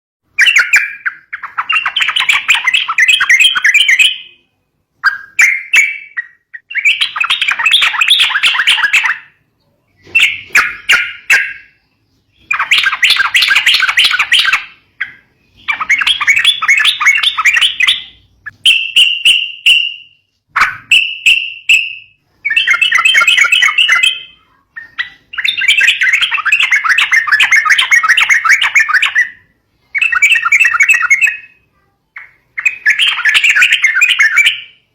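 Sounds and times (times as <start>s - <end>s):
bird chattering calls: 10.0s - 19.1s, 22.4s - 31.6s, 32.2s - 34.8s.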